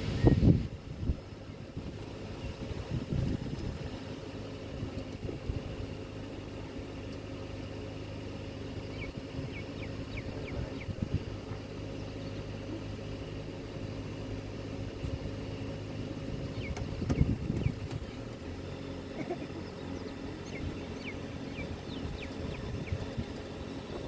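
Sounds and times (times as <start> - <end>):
vehicle engine idling: 0.0 - 24.0
bird chirps: 8.8 - 11.0, 16.3 - 18.3, 19.3 - 23.4.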